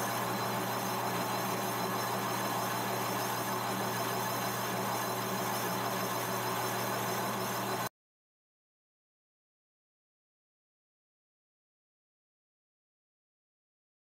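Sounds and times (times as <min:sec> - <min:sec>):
metal lathe humming: 0:00.0 - 0:07.9.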